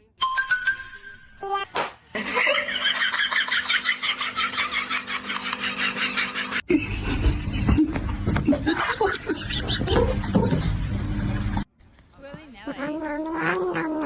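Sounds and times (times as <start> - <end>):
pulsed laughter: 2.2 - 11.6.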